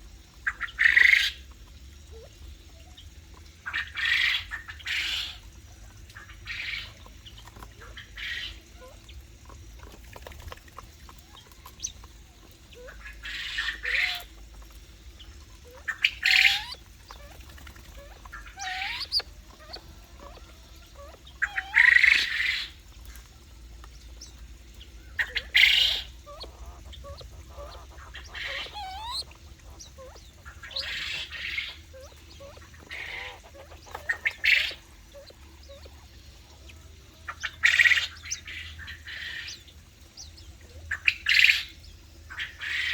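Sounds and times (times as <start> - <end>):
soft rising bird chirps: 15.2 - 22.8, 24.0 - 41.9
birds squawking harshly: 15.7 - 22.8, 25.1 - 35.9.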